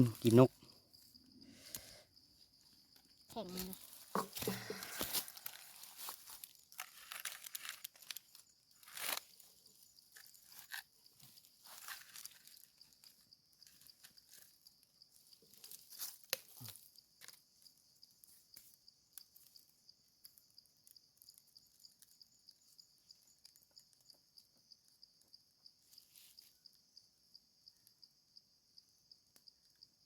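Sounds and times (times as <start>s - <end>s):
high insect trill: 0.0s - 30.0s
sharp crackles and knocks: 2.9s - 14.7s.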